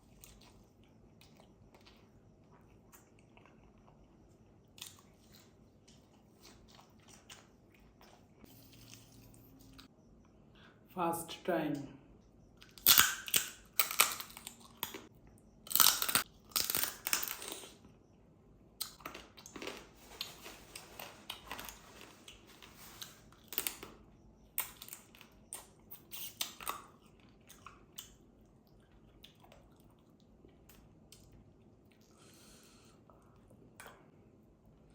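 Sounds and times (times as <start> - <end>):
soft chewing: 0.0 - 10.4, 16.2 - 34.9
crunching bites: 12.6 - 15.1, 15.7 - 17.8.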